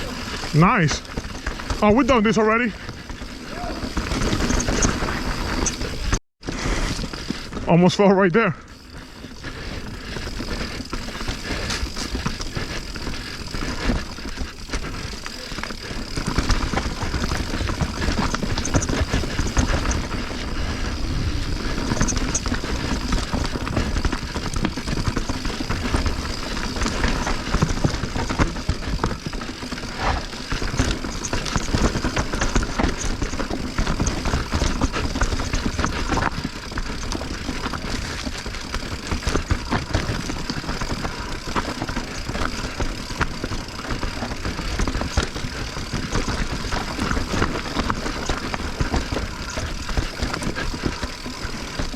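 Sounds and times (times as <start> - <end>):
bike rattling and knocking: 0.0 - 6.2, 8.6 - 51.9
tyre rumble: 3.1 - 7.7, 9.3 - 51.9
wind noise on microphone: 16.9 - 26.7.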